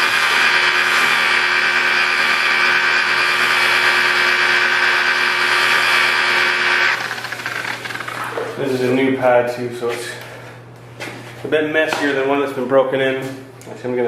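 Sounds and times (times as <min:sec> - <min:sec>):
electric polisher running: 0:00.0 - 0:08.6.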